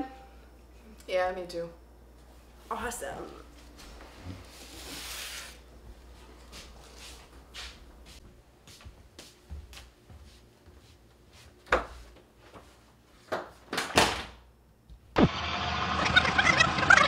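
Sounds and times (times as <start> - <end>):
footsteps: 5.8 - 13.3
sped-up high-pitched chatter: 16.0 - 17.0.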